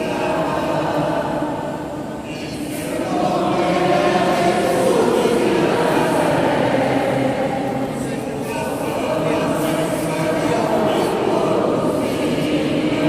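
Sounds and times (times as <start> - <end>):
crowd singing a hymn: 0.0 - 13.0.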